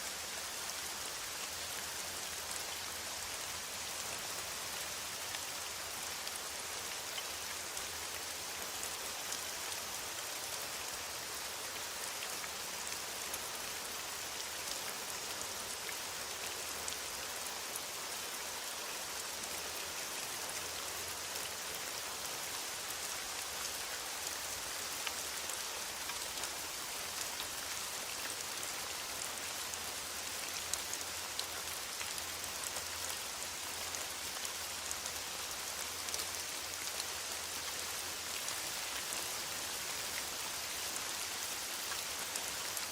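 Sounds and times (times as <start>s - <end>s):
rain falling on foliage: 0.0s - 42.9s.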